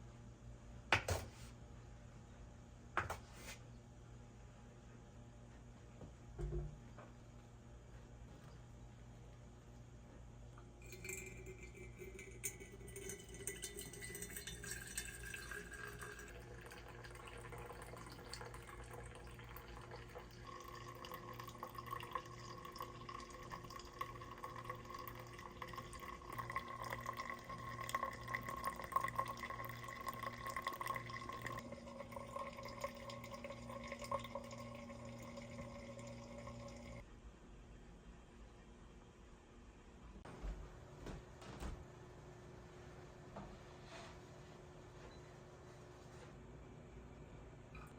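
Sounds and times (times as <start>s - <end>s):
low steady hum: 0.0s - 47.9s
water running into a container: 10.8s - 37.0s.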